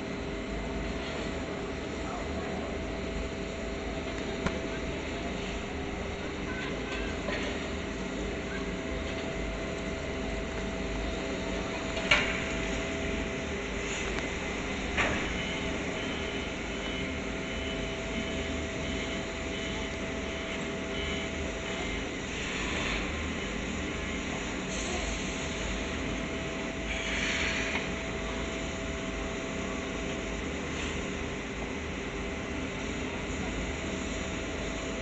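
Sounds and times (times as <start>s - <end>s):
steam locomotive hum and hiss: 0.0s - 35.0s.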